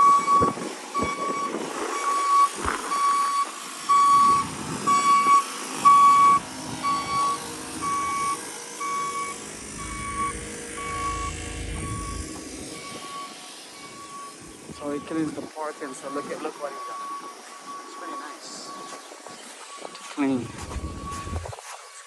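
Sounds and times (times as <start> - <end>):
reversing alarm beeps: 0.0 - 21.6
vehicle engine running: 2.8 - 16.1.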